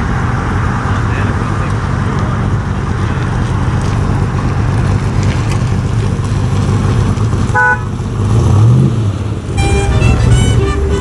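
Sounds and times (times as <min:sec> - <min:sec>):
car engine running: 0:00.0 - 0:11.0
car horn toot: 0:07.5 - 0:08.0, 0:09.5 - 0:11.0.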